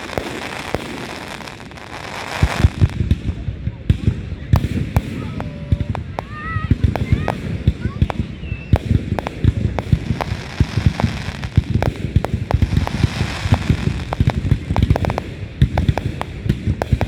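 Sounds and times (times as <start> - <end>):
fireworks bangs and booms: 0.0 - 17.0
fireworks hissing crackle: 0.0 - 17.0.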